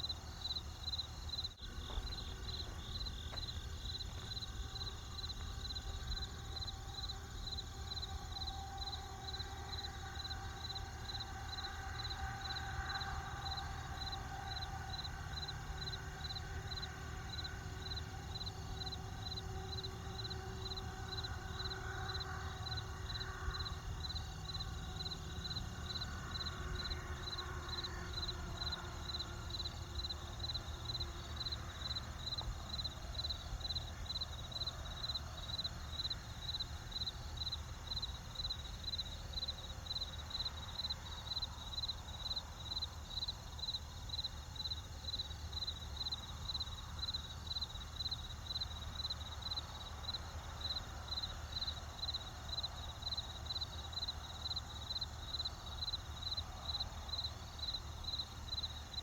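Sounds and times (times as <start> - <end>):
low steady rumble: 0.0 - 39.8
crickets chirping: 0.0 - 59.0.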